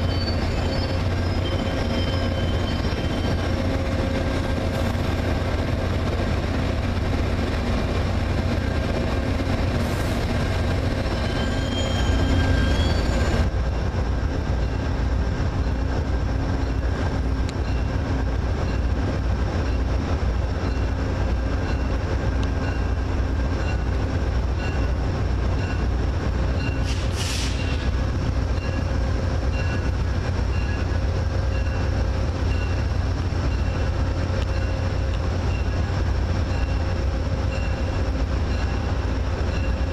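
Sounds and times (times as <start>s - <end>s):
high squeal: 0.0s - 3.5s, 11.0s - 13.5s
train rumbling: 0.0s - 39.9s
air hiss: 26.9s - 27.8s.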